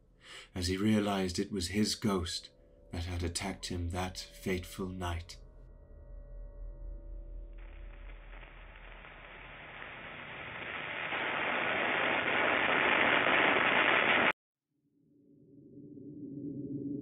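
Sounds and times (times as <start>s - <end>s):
low humming drone: 2.5s - 10.4s
rushing noise effect: 7.4s - 14.3s.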